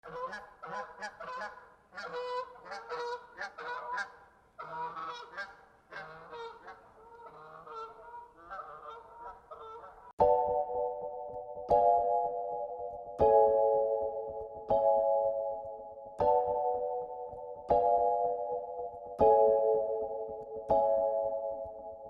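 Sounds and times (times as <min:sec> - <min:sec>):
geese honking: 0:00.0 - 0:10.1.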